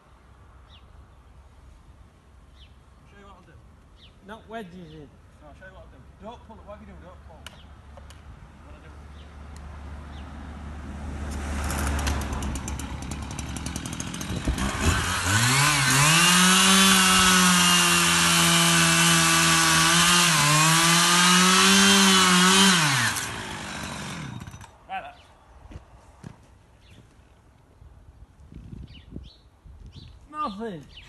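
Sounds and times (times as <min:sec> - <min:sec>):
two-stroke chainsaw revving: 0:11.5 - 0:24.8.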